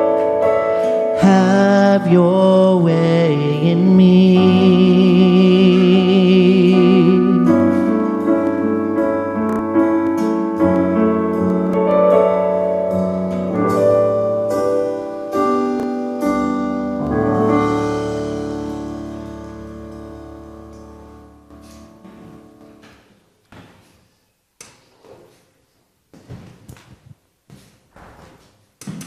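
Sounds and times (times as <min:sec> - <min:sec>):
piano chords: 0:00.0 - 0:23.0
person singing with vibrato: 0:00.5 - 0:09.0.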